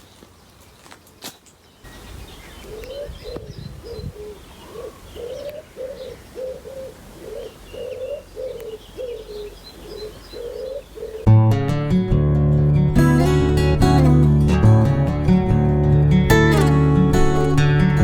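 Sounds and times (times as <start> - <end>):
small birds chirping: 0.0 - 11.3
pigeon cooing: 2.4 - 11.3.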